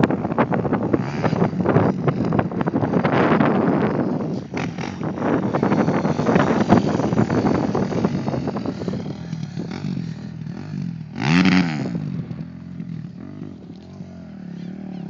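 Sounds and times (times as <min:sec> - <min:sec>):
faint revs of other bikes: 0:00.0 - 0:15.0
motocross bike engine revving: 0:00.1 - 0:15.0.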